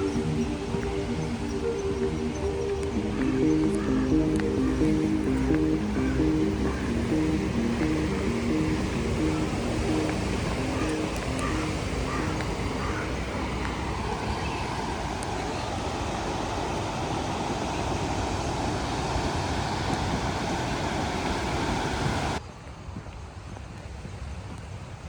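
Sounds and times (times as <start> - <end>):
background music: 0.0 - 15.2
sea surf: 0.0 - 22.4
wind on microphone: 0.0 - 23.1.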